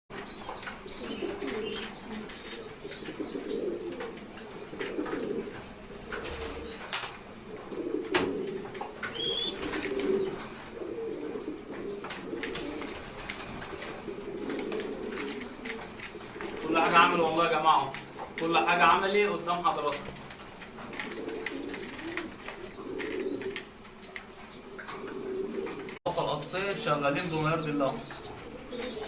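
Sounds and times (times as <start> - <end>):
pigeons cooing: 0.1 - 29.0
pigeon wing flaps: 6.0 - 7.1, 8.0 - 10.4, 12.0 - 16.6.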